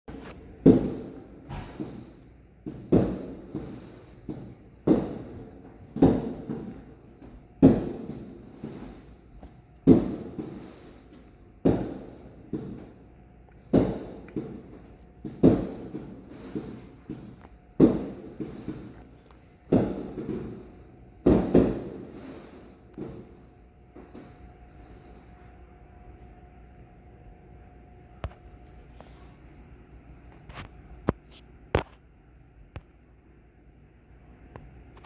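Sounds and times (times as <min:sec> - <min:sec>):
fireworks bangs and pops: 0:00.1 - 0:25.4
falling firework whistle: 0:00.2 - 0:25.7.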